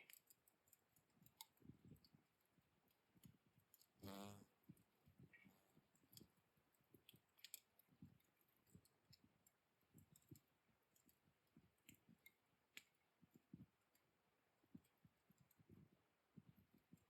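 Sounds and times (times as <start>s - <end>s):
embers crackling and popping: 0.0s - 2.3s, 6.9s - 11.1s.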